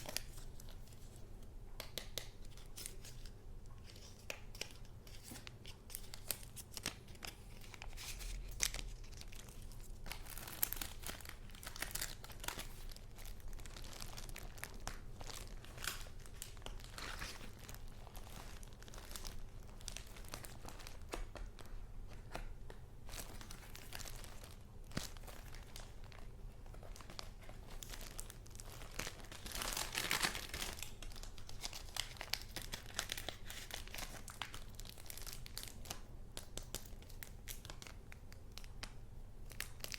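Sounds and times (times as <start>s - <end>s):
paper rustling and crinkling: 2.5s - 22.5s.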